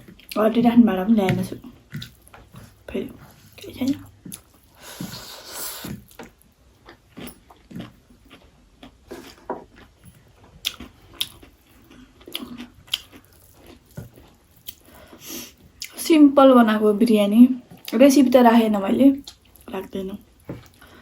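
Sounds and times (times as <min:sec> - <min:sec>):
chewing and biting food: 0:01.4 - 0:16.0.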